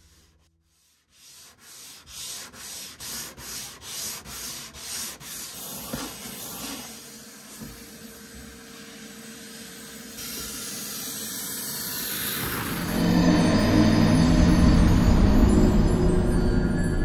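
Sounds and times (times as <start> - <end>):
sanding block rubbing wood: 0.1 - 10.4
shop vacuum hissing: 3.5 - 14.3.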